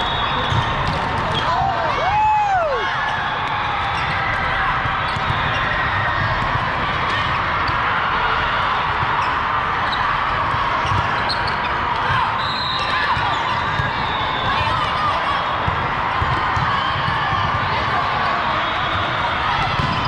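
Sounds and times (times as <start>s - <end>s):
many overlapping voices: 0.0s - 20.0s
volleyball hits: 0.1s - 2.0s, 15.6s - 18.1s, 19.0s - 20.0s.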